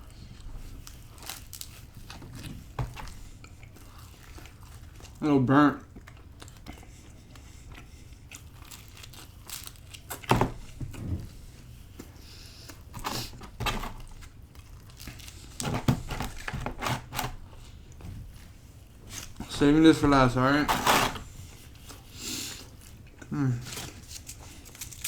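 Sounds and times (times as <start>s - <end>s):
pizza being bitten and chewed: 0.0s - 15.7s, 21.2s - 25.0s
crinkling and rustling: 0.1s - 5.2s, 8.4s - 25.0s.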